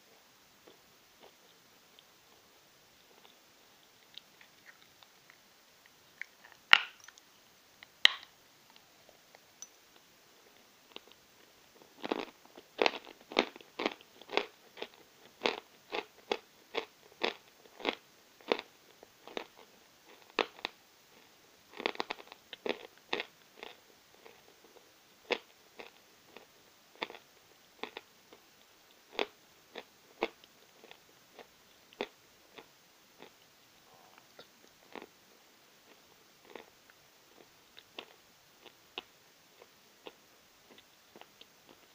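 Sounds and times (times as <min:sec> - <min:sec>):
chalk crunching while chewing: 0:04.0 - 0:07.3.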